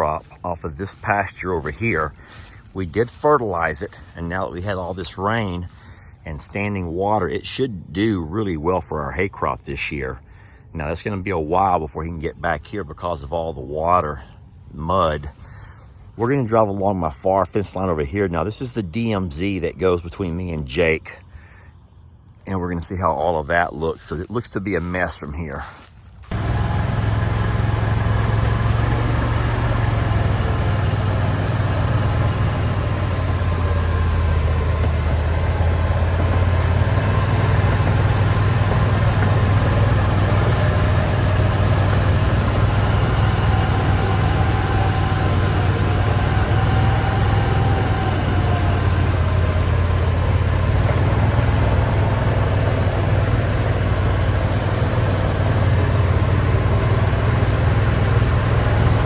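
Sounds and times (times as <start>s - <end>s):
vehicle engine humming: 0.0s - 8.5s, 20.9s - 59.0s.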